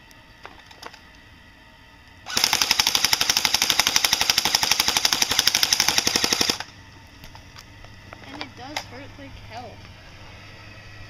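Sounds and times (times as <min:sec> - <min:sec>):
airsoft gun firing full auto: 0:02.3 - 0:06.7.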